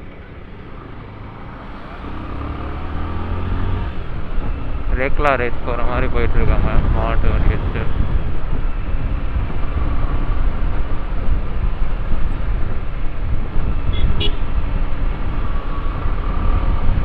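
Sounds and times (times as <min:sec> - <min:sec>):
motorcycle engine and road rumble: 0:00.0 - 0:17.0
wind noise on microphone: 0:06.1 - 0:17.0.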